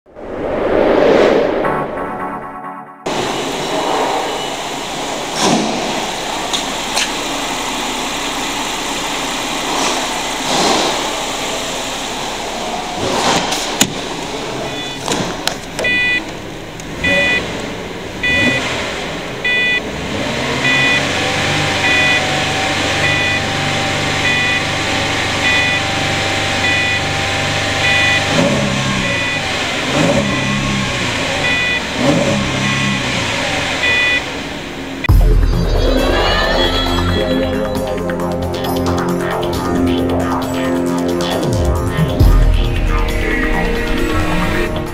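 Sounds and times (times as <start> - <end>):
car engine idling and revving: 3.1 - 44.9
dashboard warning chime beeping: 14.7 - 15.1, 15.8 - 16.3, 16.9 - 17.6, 18.2 - 18.7, 19.4 - 19.9, 20.6 - 29.5, 30.1 - 33.2, 33.8 - 34.4.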